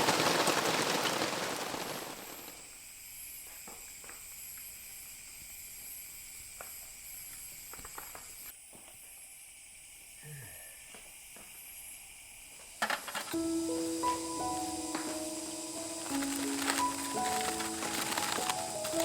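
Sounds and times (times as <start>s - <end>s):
heavy rain: 0.0s - 2.6s, 13.8s - 19.0s
faint high hiss: 9.2s - 19.0s
soft crackles and ticks: 16.0s - 19.0s.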